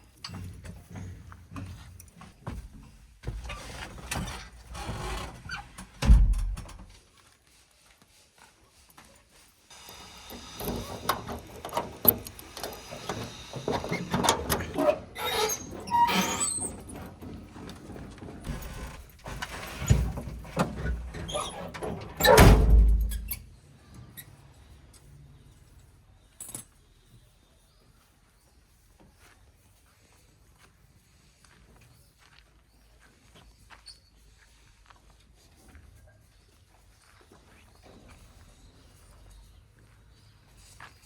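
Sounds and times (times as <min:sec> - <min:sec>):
metal squeals and clanks: 0:09.8 - 0:23.5.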